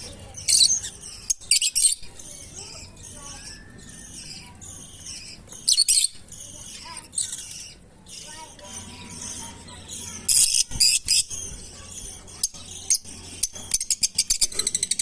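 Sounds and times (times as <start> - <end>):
lovebirds chirping: 0.0 - 15.0.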